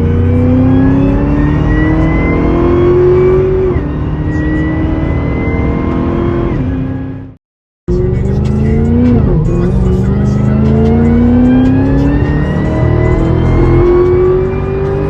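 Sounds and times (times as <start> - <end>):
car engine accelerating hard: 0.0 - 15.0
supercharger whine: 0.0 - 15.0.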